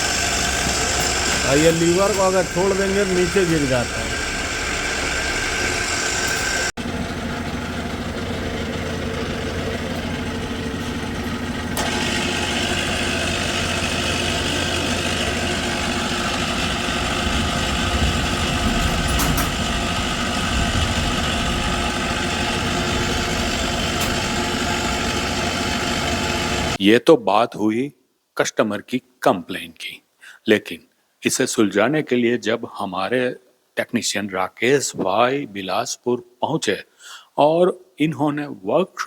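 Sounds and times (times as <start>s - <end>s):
machine gearbox running loudly: 0.0s - 26.8s.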